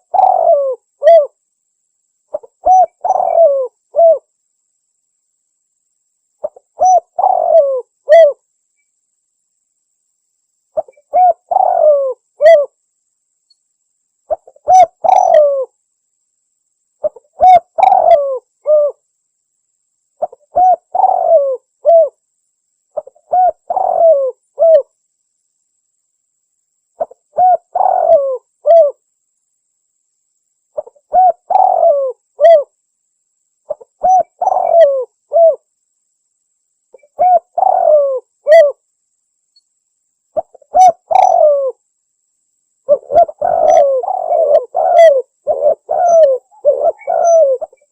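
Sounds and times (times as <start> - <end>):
dove cooing: 0.0 - 1.4, 2.3 - 4.3, 6.4 - 8.4, 10.8 - 12.8, 14.3 - 15.7, 17.0 - 19.0, 20.2 - 22.2, 23.0 - 24.9, 27.0 - 29.0, 30.8 - 32.7, 33.7 - 35.6, 37.0 - 38.8, 40.4 - 41.8, 42.9 - 47.9.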